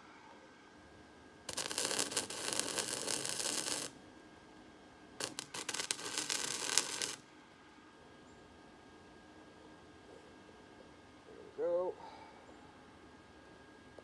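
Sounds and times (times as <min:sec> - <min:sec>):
welding arc crackling: 0:01.5 - 0:04.0, 0:05.2 - 0:07.2.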